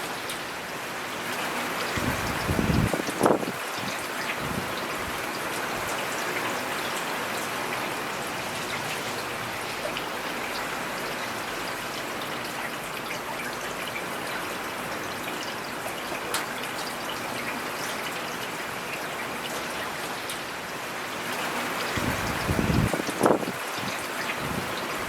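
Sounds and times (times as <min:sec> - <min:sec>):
steady rain hissing: 0:00.0 - 0:25.0
raindrops tapping: 0:01.9 - 0:05.4, 0:21.8 - 0:25.0.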